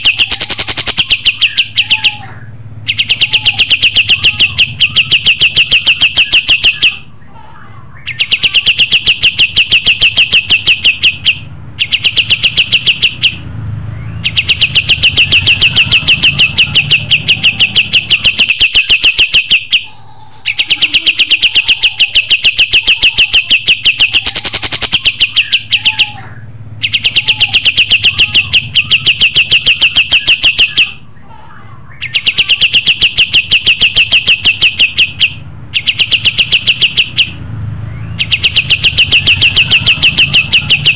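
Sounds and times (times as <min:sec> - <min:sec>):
bird rattling chirps: 0:00.0 - 0:02.2, 0:02.9 - 0:07.0, 0:08.1 - 0:13.4, 0:14.2 - 0:19.9, 0:20.5 - 0:26.1, 0:26.8 - 0:31.0, 0:32.0 - 0:37.4, 0:38.1 - 0:40.9.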